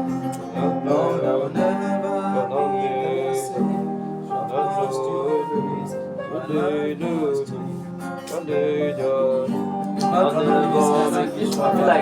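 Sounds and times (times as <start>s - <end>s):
guitar with bending notes: 0.0s - 12.0s
slow worship music: 0.0s - 12.0s.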